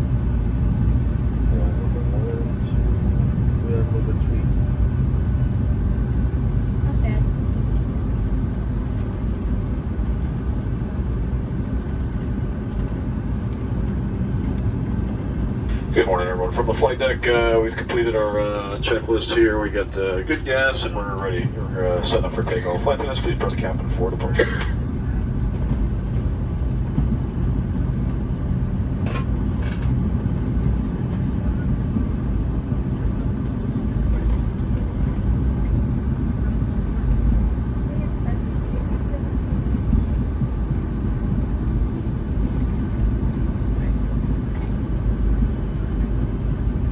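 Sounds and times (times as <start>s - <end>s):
aircraft cabin engine rumble: 0.0s - 46.9s
faint steady whine: 0.0s - 46.9s.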